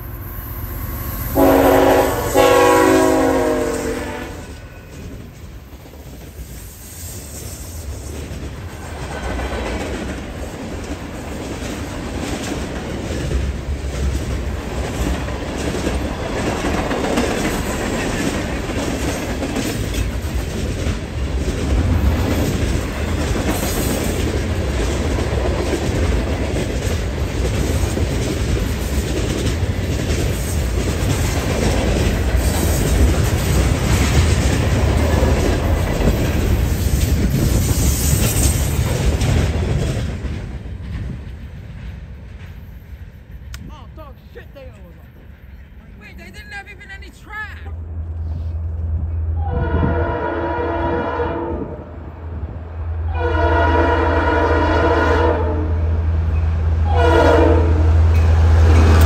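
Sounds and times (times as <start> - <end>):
train rumbling past: 0.0 - 59.0.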